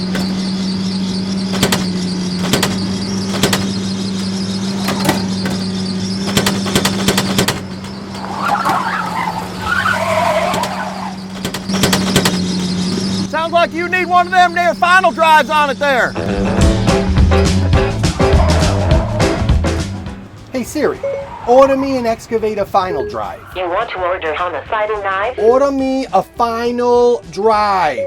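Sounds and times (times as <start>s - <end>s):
squealing noise: 0.0s - 16.2s, 18.0s - 19.6s
engine humming: 0.0s - 28.0s
sharp knocks: 1.5s - 8.8s, 10.5s - 13.0s.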